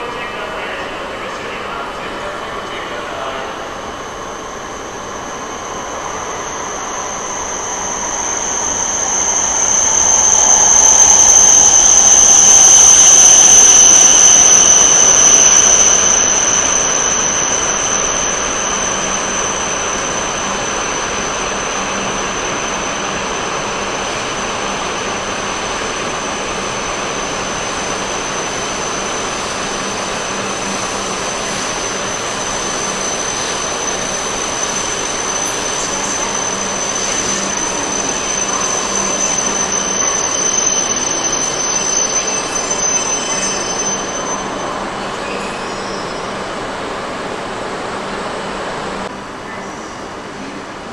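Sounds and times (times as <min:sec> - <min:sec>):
train passing: 0:00.0 - 0:50.9.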